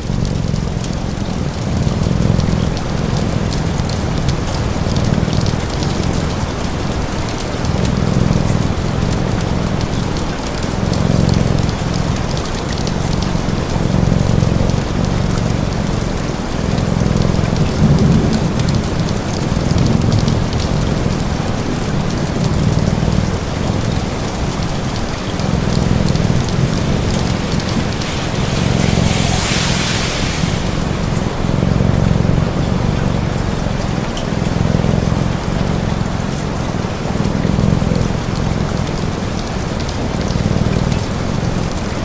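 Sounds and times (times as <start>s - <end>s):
wood fire crackling: 0.0s - 36.1s
cat purring: 0.0s - 41.6s
steady rain: 0.0s - 42.0s
hiss: 25.6s - 31.7s.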